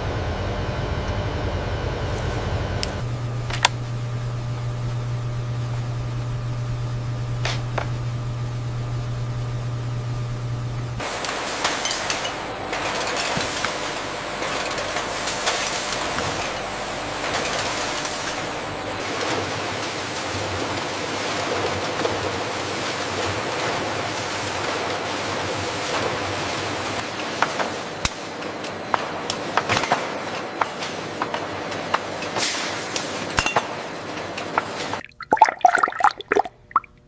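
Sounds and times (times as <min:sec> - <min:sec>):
low machine hum: 0:00.0 - 0:24.4.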